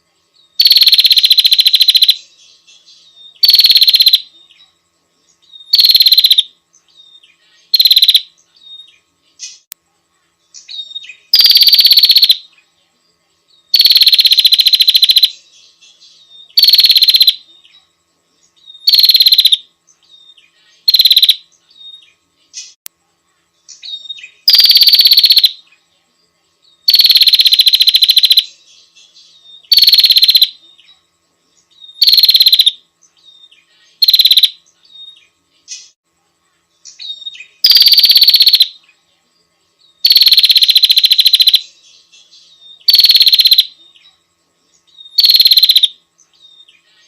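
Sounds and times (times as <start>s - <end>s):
bird harsh trilling bursts: 0.6s - 2.2s, 3.4s - 4.3s, 5.6s - 6.5s, 7.7s - 8.3s, 10.9s - 12.4s, 13.7s - 15.4s, 16.5s - 17.4s, 18.8s - 19.6s, 20.8s - 21.4s, 23.9s - 25.6s, 26.9s - 28.5s, 29.7s - 30.6s, 31.9s - 32.8s, 34.0s - 34.6s, 37.0s - 38.8s, 40.0s - 41.6s, 42.8s - 43.7s, 45.1s - 45.9s.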